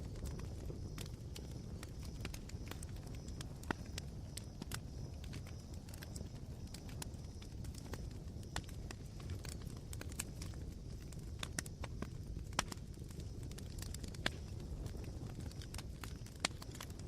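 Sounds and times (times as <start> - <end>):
campfire embers crackling: 0.0 - 17.0.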